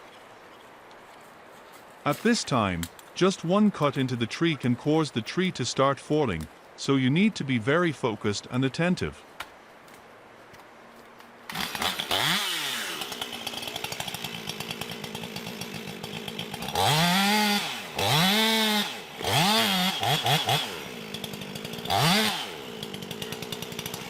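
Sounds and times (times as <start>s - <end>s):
chainsaw engine revving: 11.5s - 24.0s.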